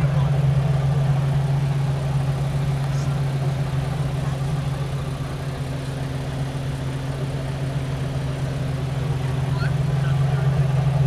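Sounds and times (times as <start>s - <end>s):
car engine running steadily: 0.0s - 11.0s.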